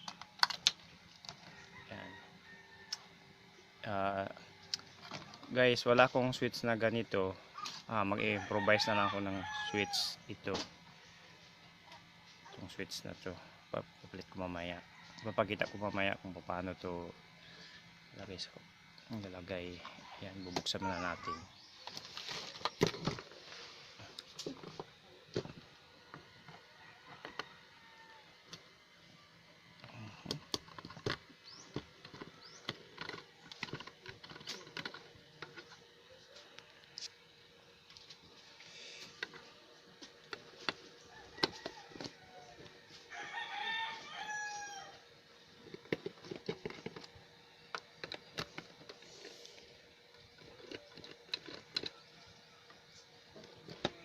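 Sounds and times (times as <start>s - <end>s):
rooster crowing: 1.4s - 3.3s, 8.2s - 10.2s, 14.7s - 16.2s, 26.0s - 28.4s, 41.0s - 45.1s.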